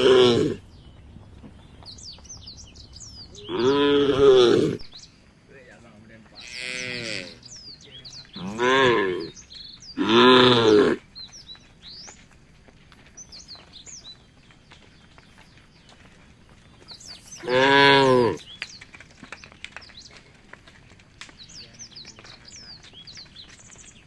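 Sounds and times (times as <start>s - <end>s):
cattle mooing: 0.0s - 0.6s, 3.4s - 4.9s, 6.4s - 7.4s, 8.4s - 9.4s, 10.0s - 11.0s, 17.4s - 18.5s
birds chirping: 0.0s - 24.0s.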